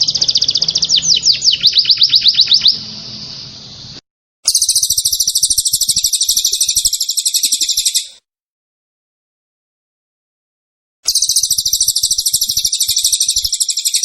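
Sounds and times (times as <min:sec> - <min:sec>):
songbird trilling: 0:00.0 - 0:08.2, 0:11.1 - 0:14.0.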